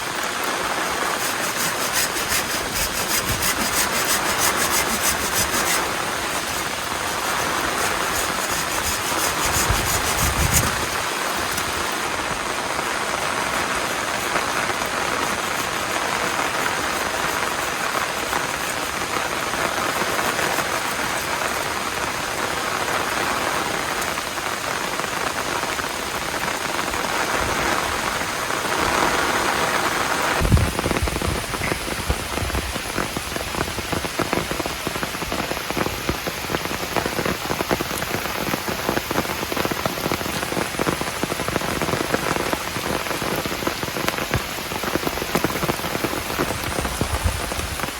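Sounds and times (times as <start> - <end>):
heavy rain falling: 0.0 - 47.9
rhythmic rasping: 0.9 - 11.7.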